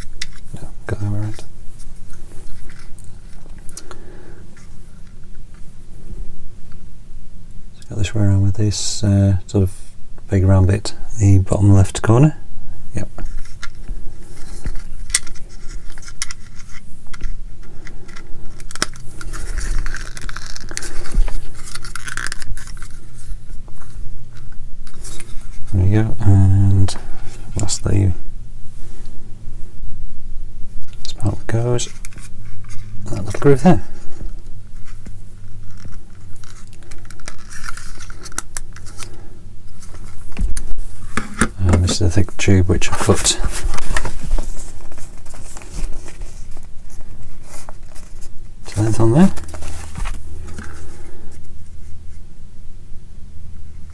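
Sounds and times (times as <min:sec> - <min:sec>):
plastic parts scraping: 0:00.0 - 0:05.6, 0:13.0 - 0:26.2, 0:31.2 - 0:51.8.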